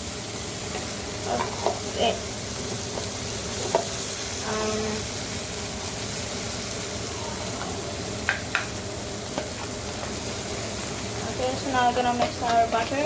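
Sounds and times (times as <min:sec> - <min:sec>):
sauce sizzling in a frying pan: 0:00.0 - 0:13.0.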